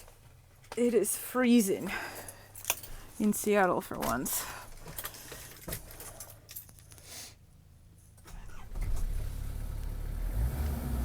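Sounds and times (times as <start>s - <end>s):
keys jangling: 2.2s - 3.2s
diesel engine starting and idling: 8.2s - 11.0s.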